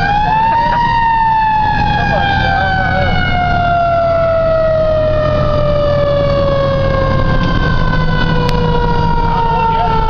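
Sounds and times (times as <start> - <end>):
fire engine siren winding down: 0.0 - 10.0
truck engine rumble: 0.0 - 10.0.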